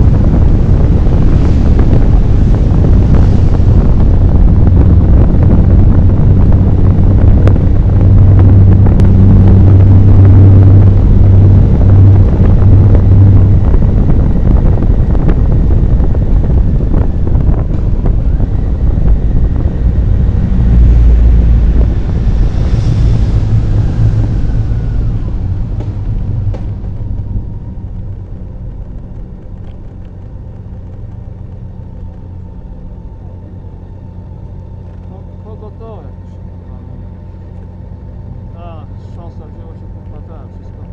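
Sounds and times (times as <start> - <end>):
motorcycle engine hum: 0.0 - 40.9
wind rushing over microphone: 0.0 - 40.9.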